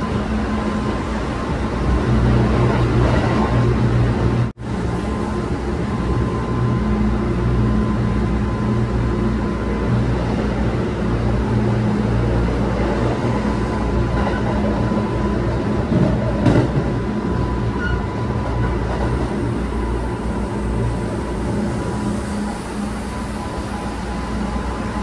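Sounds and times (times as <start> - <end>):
train wheels and motors rumbling: 0.0 - 25.0
train clack: 15.8 - 17.0.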